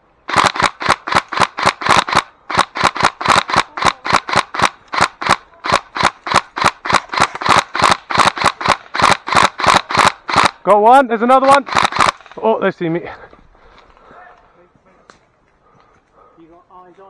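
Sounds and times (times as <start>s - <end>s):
airsoft gun rapid shots: 0.3s - 10.7s, 11.4s - 12.5s.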